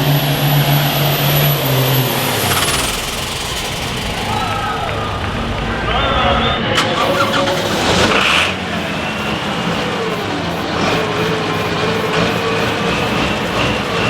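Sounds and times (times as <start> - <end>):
vehicle engine running hard: 0.0 - 14.0
steady high whine: 0.1 - 14.0.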